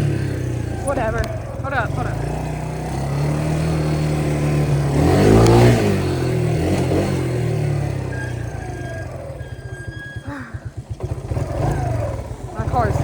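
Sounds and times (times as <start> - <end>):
small engine revving: 0.0 - 13.0.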